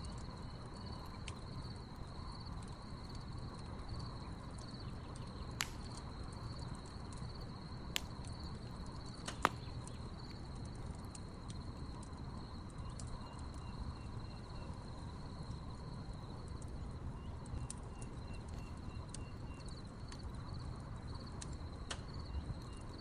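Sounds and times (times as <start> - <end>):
crickets trilling: 0.0 - 23.0
campfire crackling and popping: 0.2 - 13.6.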